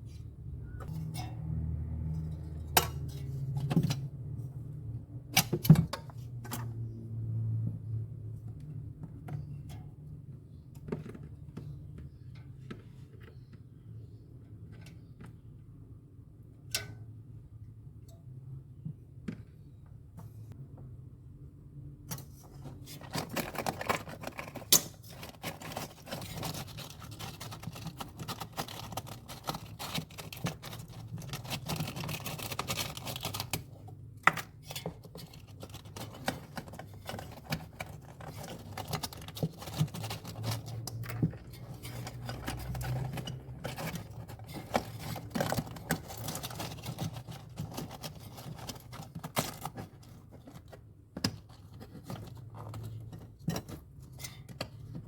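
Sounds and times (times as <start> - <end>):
tools clicking and scraping: 22.1 - 55.0.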